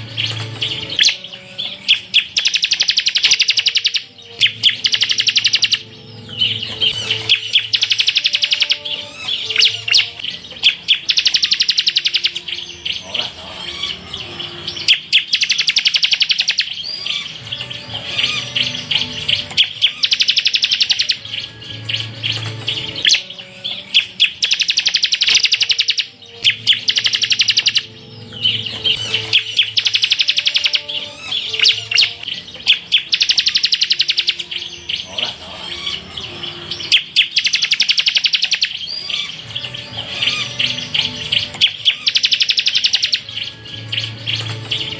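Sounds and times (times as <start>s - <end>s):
bird singing rattling trills: 0.0s - 44.9s.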